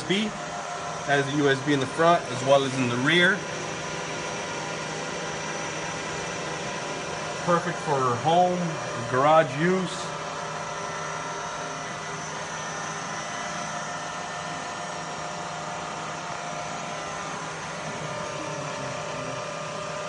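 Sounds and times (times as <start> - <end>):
milling machine motor hum: 0.0 - 20.0.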